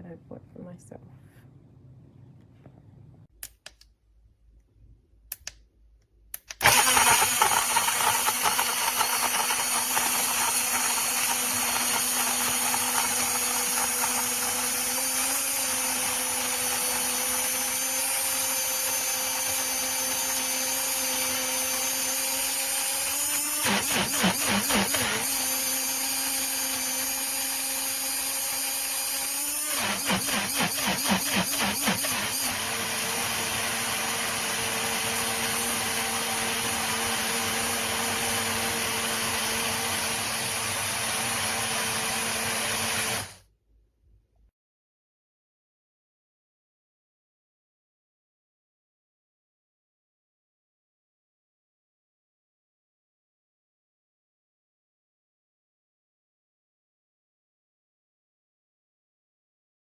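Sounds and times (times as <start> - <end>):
blender clicks: 6.4 - 43.4
blender motor whining: 6.5 - 43.4.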